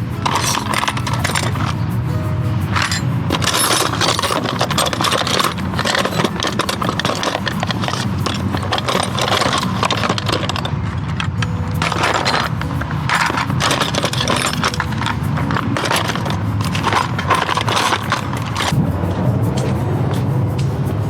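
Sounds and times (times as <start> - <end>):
small metal objects clattering: 0.0 - 18.8
steady low hum: 0.0 - 21.0.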